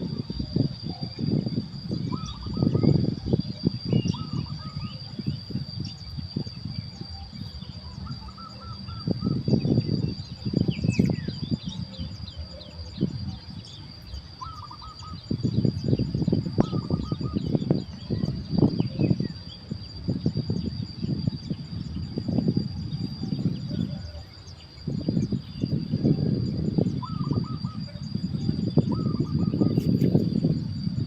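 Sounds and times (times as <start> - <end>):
high insect-like drone: 0.0 - 31.0
birds chirping: 0.3 - 30.6.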